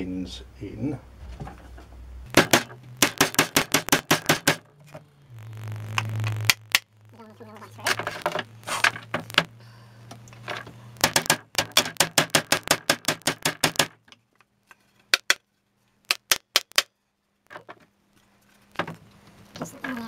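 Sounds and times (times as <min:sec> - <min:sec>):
hammer tapping pins: 0:02.3 - 0:04.6, 0:11.0 - 0:14.0, 0:16.1 - 0:16.9.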